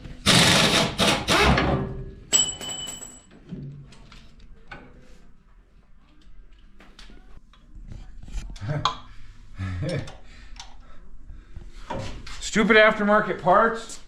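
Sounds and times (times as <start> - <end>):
metal tools clattering: 2.3 - 3.3
ringing metal clank: 2.3 - 3.3.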